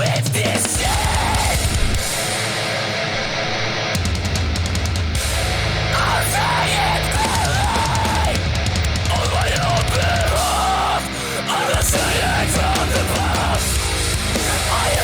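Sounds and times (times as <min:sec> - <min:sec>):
shouted vocals: 0:00.0 - 0:01.9, 0:05.9 - 0:15.0
distorted guitars bass and drums: 0:00.0 - 0:15.0.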